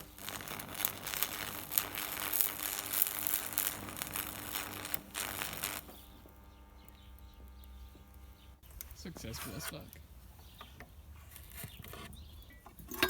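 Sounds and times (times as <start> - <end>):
welding arc crackling: 0.0 - 10.4
low steady hum: 0.0 - 11.6.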